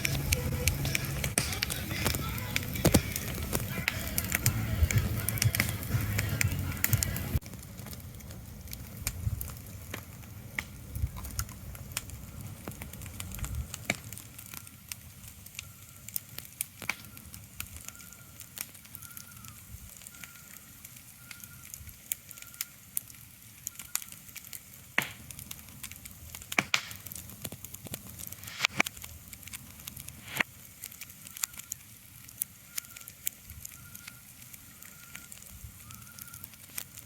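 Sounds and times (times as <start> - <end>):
low rumble: 0.0 - 13.8
crackling pops: 0.0 - 37.0.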